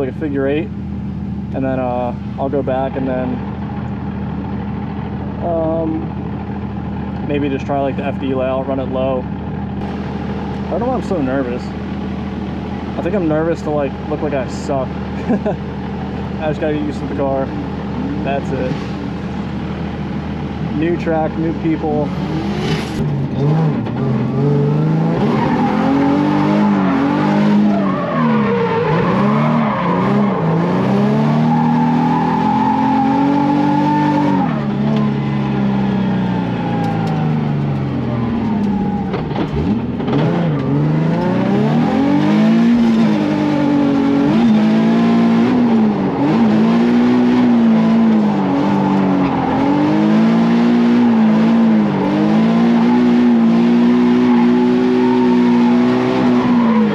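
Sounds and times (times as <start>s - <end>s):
car engine revving: 0.0s - 56.9s
tyres squealing: 25.2s - 37.4s, 45.9s - 51.7s.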